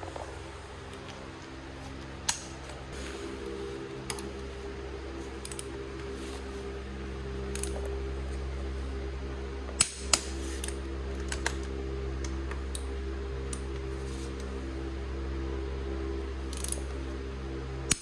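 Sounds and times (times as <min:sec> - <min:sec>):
low hum: 0:00.0 - 0:18.0
tools and metal parts clicking: 0:05.3 - 0:05.7, 0:07.5 - 0:08.4, 0:16.4 - 0:17.0.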